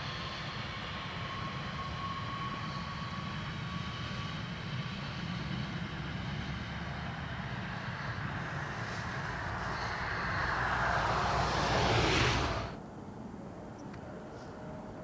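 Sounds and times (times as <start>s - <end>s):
distant train running past: 0.0s - 15.0s
thin whine: 7.9s - 12.8s.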